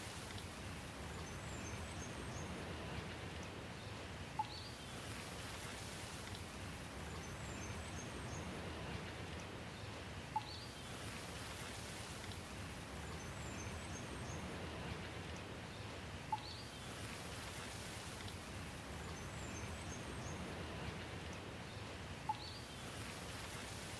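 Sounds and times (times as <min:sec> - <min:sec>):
steady rain hiss: 0:00.0 - 0:23.9
faint high bird chirps: 0:10.4 - 0:10.8, 0:22.3 - 0:22.8.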